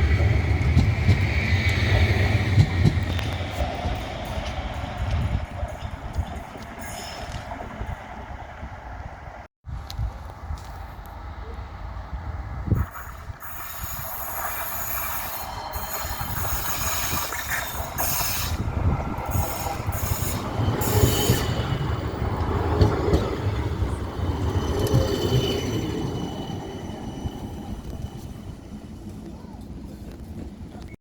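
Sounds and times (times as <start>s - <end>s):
tram rumbling: 0.0s - 31.0s
high-pitched wheel squeal: 13.4s - 21.9s.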